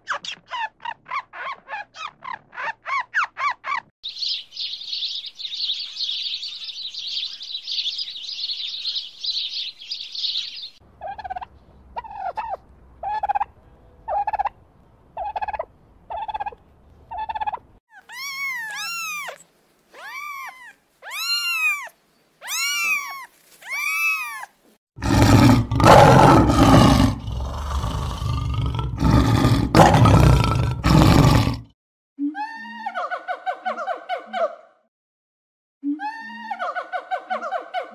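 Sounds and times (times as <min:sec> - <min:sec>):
rising and falling animal calls: 0:15.2 - 0:31.6
short animal calls: 0:17.9 - 0:24.5
harsh noisy animal calls: 0:20.0 - 0:31.7.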